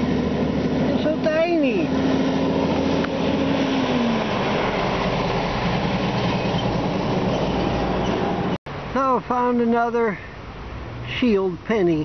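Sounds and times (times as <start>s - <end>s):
vehicle engine passing by: 0.0s - 8.6s
road traffic rumble: 0.0s - 12.0s.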